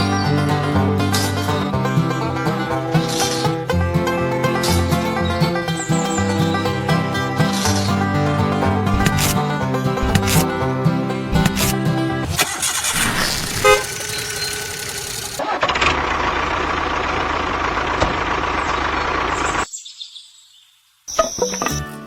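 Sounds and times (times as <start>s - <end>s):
vehicle engine running: 10.0s - 19.6s
short horn toot: 13.5s - 14.0s.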